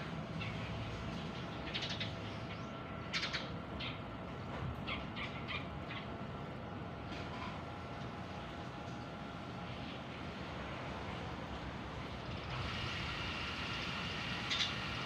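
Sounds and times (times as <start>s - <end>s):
steady background hum: 0.0s - 15.0s
small birds chirping: 1.2s - 4.0s.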